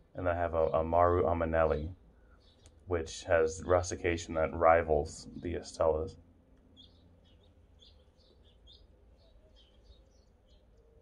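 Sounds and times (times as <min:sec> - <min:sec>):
faint low rumble: 0:02.8 - 0:06.7
faint bird chirps: 0:06.7 - 0:11.0.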